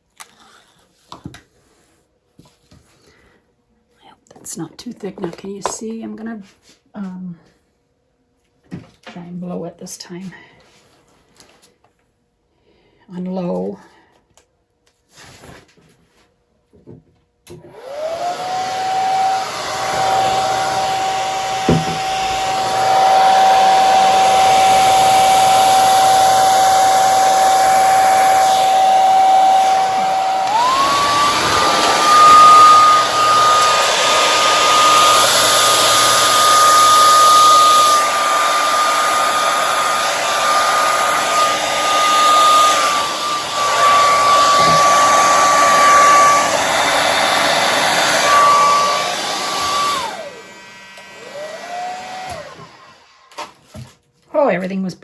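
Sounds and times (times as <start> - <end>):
hair dryer whining: 4.6 - 5.8, 17.5 - 53.5.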